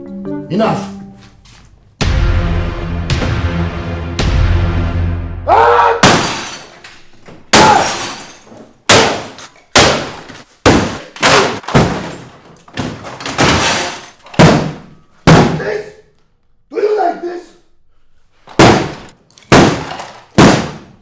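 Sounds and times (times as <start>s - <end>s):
background music: 0.0s - 5.7s
hard smashing blows: 5.5s - 15.8s, 18.5s - 21.0s.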